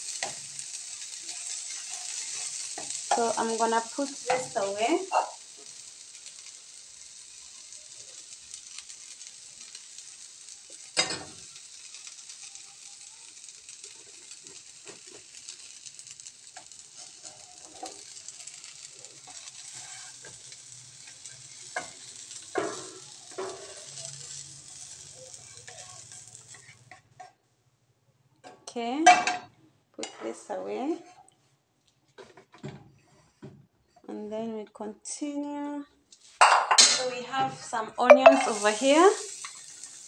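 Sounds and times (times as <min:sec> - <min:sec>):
eggplant sizzling in oil: 0:00.0 - 0:27.4, 0:36.1 - 0:40.0.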